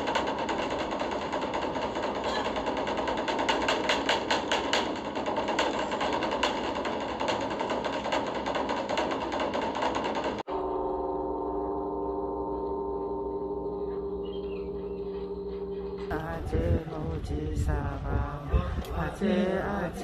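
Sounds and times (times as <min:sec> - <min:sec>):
dense pulsing clatter: 0:00.0 - 0:20.0
gong ringing: 0:10.4 - 0:17.1.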